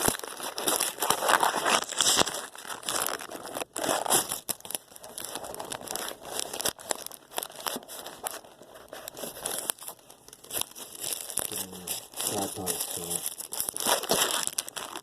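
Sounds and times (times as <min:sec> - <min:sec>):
rustling and crinkling: 0:00.0 - 0:15.0.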